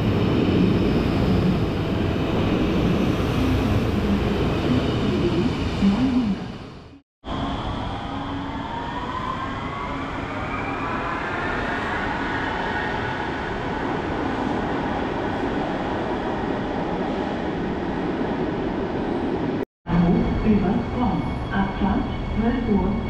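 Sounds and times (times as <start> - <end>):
train whine rising in pitch: 0.0 - 13.8.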